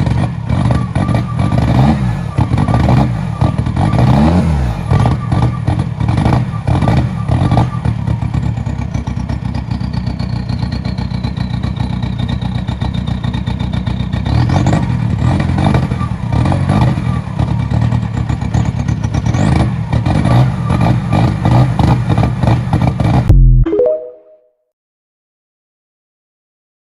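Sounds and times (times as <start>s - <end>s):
engine revving: 0.0s - 7.9s, 19.2s - 23.5s
diesel engine clattering: 0.0s - 23.3s.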